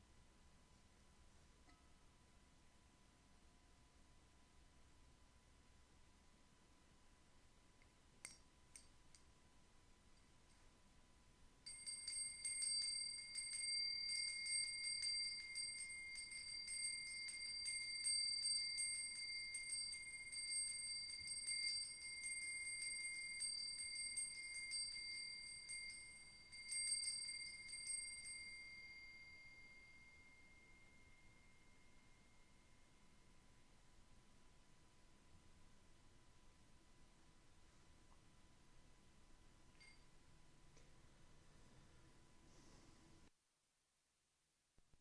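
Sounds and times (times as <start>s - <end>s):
high-pitched metal bell ringing: 11.7s - 33.3s, 39.8s - 40.2s.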